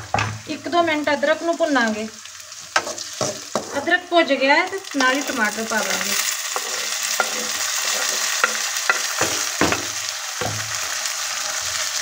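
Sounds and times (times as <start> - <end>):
spoon knocking and scraping a pan: 0.0 - 0.4, 2.7 - 3.9, 5.3 - 11.0
frying sizzle in a pan: 0.0 - 12.0.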